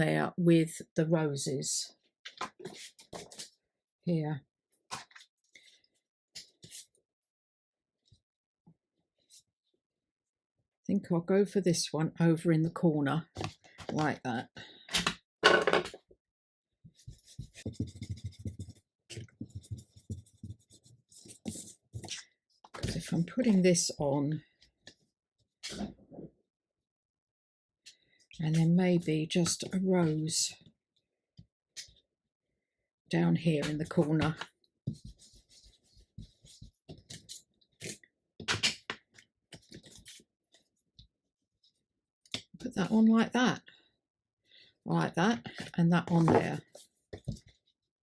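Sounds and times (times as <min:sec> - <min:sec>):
paper rustling: 0:39.5 - 0:40.8.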